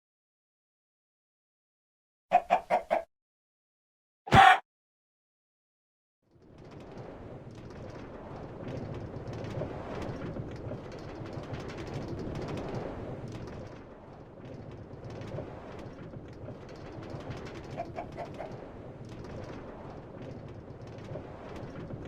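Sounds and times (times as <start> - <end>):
chicken clucking: 2.3 - 3.1.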